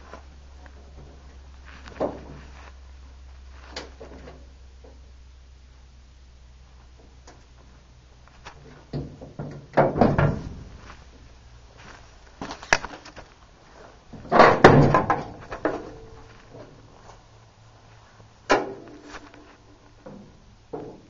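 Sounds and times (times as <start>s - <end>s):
metal clunking and knocking: 8.6s - 10.8s, 14.1s - 16.8s.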